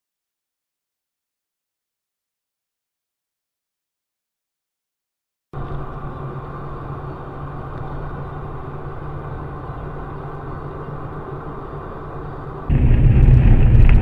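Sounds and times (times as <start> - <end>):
road noise with low hum: 5.6 - 14.0
car engine: 12.5 - 14.0.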